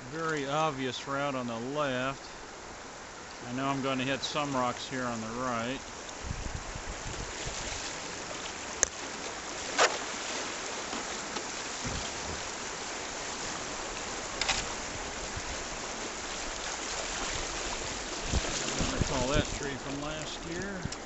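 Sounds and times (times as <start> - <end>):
river water rushing: 0.0 - 21.0
sharp knocks on kayak: 10.9 - 12.5.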